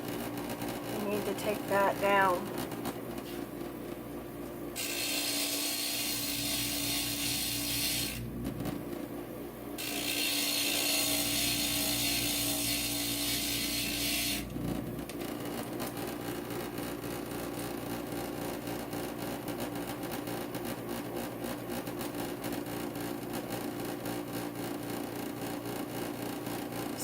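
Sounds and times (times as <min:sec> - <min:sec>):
grinder motor running: 0:09.8 - 0:14.6.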